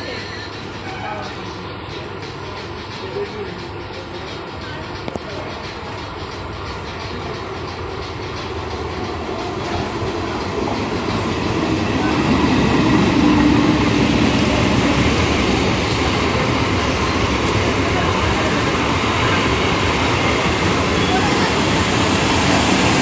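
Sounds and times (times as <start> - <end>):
train passing: 0.0 - 23.0
faint clickety-clack: 0.2 - 23.0.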